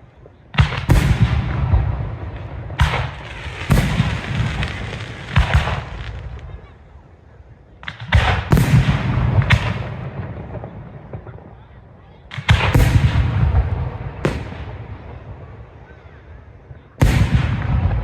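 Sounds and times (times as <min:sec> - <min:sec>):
firework shells bursting: 0:02.8 - 0:06.4.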